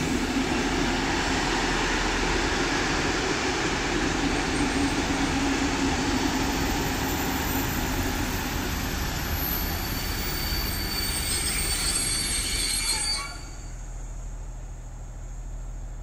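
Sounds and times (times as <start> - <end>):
train wheels rumbling on rail: 0.0 - 16.0
high wheel squeal: 6.6 - 13.8.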